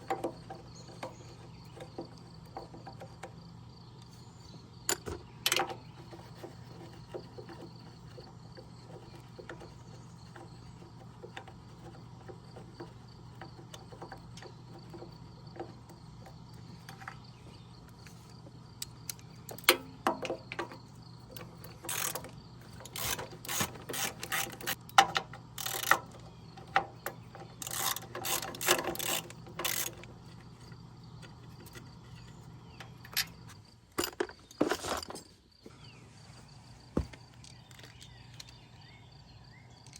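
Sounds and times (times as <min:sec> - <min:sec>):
hand tools clinking on metal: 0:19.5 - 0:30.2.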